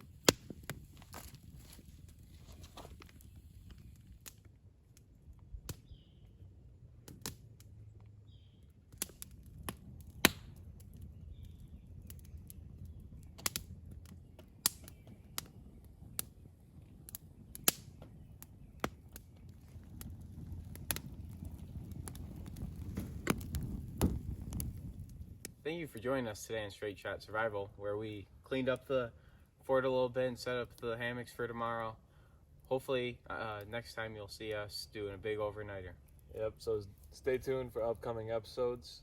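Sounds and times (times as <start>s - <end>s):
sharp knocks and snaps: 7.0s - 7.7s, 8.9s - 10.6s, 13.3s - 15.5s.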